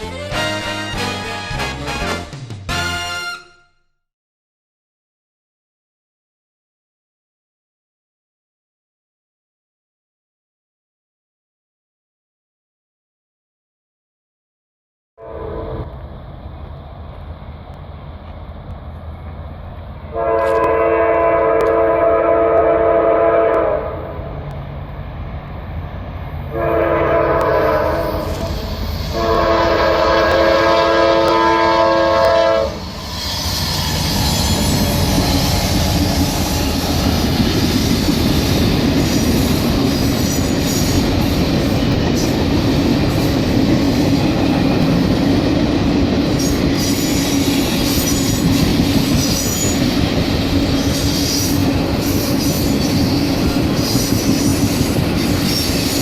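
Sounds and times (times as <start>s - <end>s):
locomotive air horn blasts: 0.0s - 4.0s, 15.2s - 15.9s, 20.1s - 24.1s, 26.5s - 32.8s
train passing with wheel clatter: 15.3s - 56.0s.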